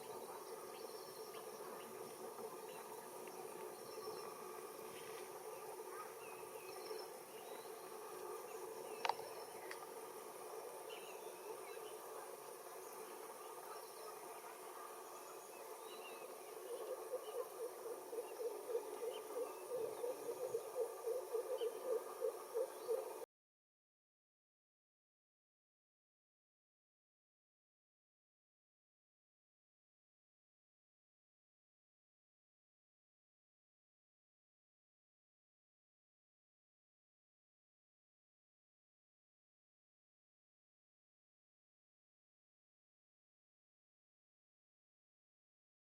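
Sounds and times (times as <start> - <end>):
insects chirping and droning: 0.0 - 23.2.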